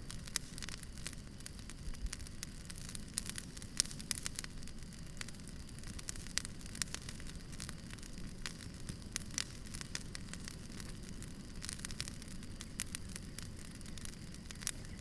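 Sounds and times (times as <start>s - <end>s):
crackles and pops of burning wood: 0.0s - 15.0s
low rumble of flames: 0.0s - 15.0s.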